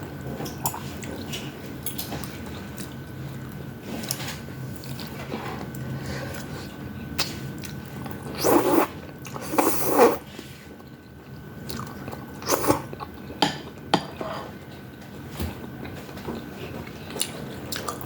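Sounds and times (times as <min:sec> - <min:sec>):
person chewing noodles: 0:04.8 - 0:10.2, 0:10.8 - 0:13.4, 0:15.8 - 0:18.0.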